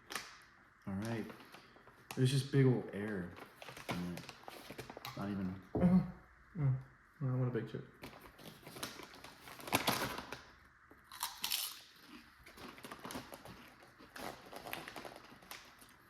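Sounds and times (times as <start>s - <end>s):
crunching potato chips: 8.2s - 16.0s.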